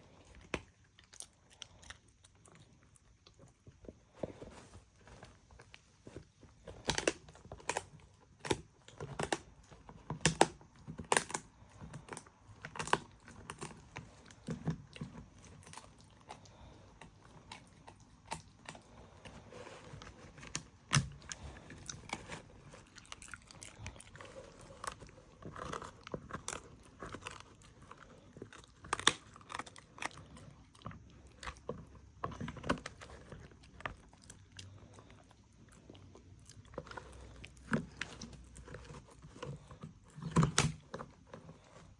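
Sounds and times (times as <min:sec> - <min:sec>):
dog chewing and crunching food: 0:00.0 - 0:41.9.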